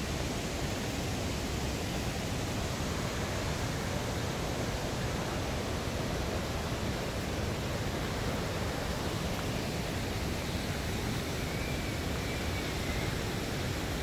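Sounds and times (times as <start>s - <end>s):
river rapids and falling water: 0.0s - 14.0s
faint thin whistle-like tone: 11.3s - 13.3s.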